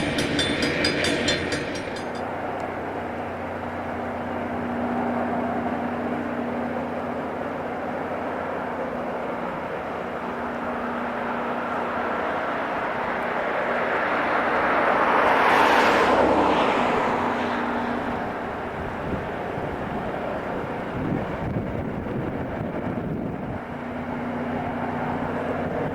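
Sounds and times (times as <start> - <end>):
rail grinding train passing: 0.0 - 4.4, 9.8 - 22.8.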